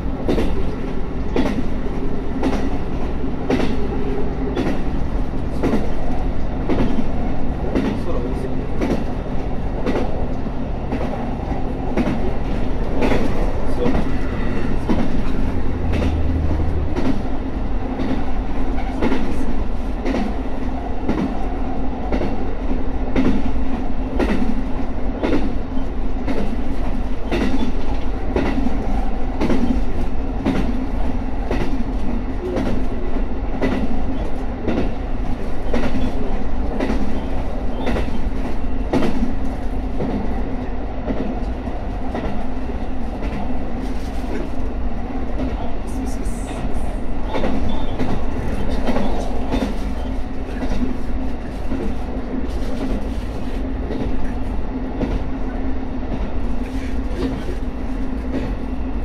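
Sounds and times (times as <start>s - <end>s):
train running drone: 0.0s - 59.0s
wheels clacking over rail joints: 0.2s - 8.1s, 10.8s - 17.3s.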